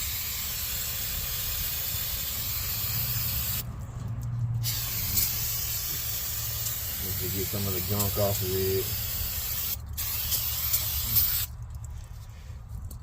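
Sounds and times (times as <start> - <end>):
aerosol spray hissing: 0.0 - 3.6, 4.6 - 11.5.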